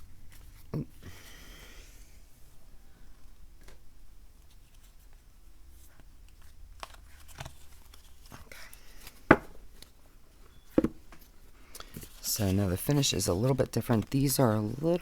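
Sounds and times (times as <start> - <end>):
cards sliding rustle: 4.4 - 10.0, 10.8 - 15.0
cards tapping on table: 9.3 - 9.6, 10.8 - 11.0.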